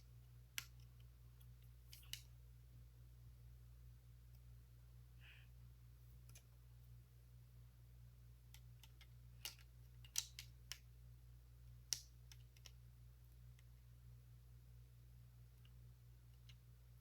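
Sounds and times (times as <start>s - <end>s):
low steady hum: 0.0s - 17.0s
plastic pieces clicking: 8.5s - 10.8s.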